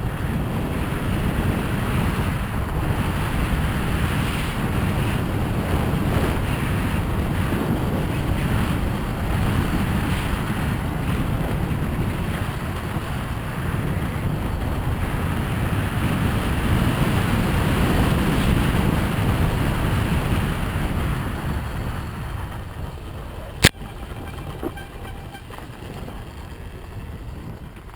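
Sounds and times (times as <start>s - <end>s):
wind buffeting microphone: 0.0s - 27.9s
dirt bike engine running: 19.6s - 27.9s.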